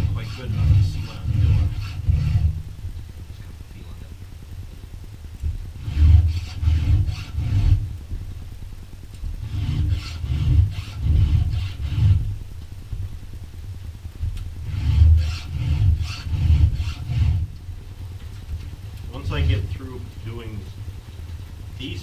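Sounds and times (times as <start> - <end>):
file rasping on chainsaw chain: 0.0 - 2.6, 5.8 - 7.8, 9.5 - 12.2, 14.7 - 17.5.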